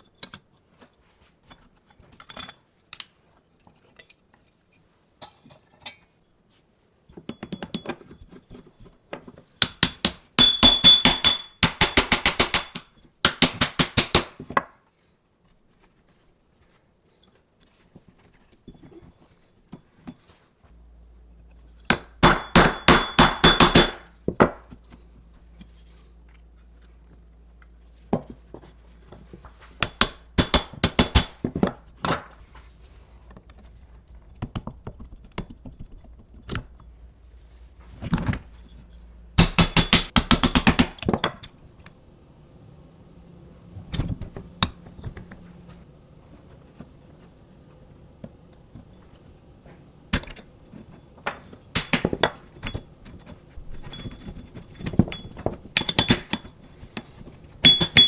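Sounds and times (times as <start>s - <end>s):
metal parts tapping and clinking: 9.6s - 12.8s, 21.8s - 24.5s, 28.1s - 32.7s, 50.2s - 58.0s
faint low hum: 15.5s - 51.7s.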